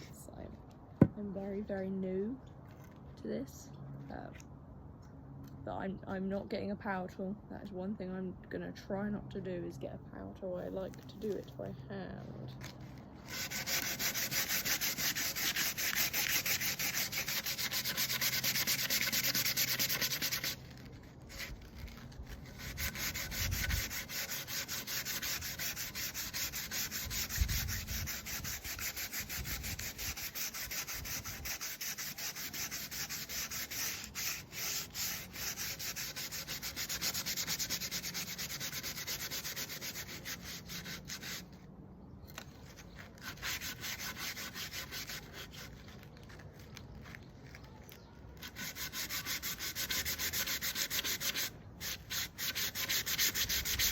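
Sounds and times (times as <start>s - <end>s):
sandpaper rasping on wood: 12.7s - 41.6s, 42.6s - 47.6s, 48.4s - 53.9s.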